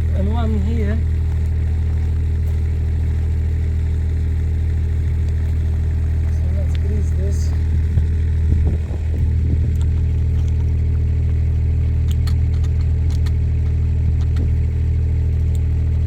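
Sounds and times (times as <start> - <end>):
diesel excavator engine idling: 0.0 - 16.0
faint sharp clicks: 12.0 - 14.6.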